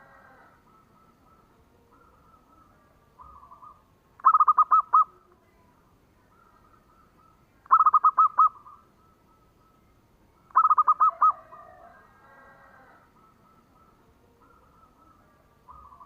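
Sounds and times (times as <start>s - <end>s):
dove cooing: 0.0s - 5.3s, 6.2s - 9.8s, 10.4s - 16.0s
faint bird chirps: 0.0s - 16.0s.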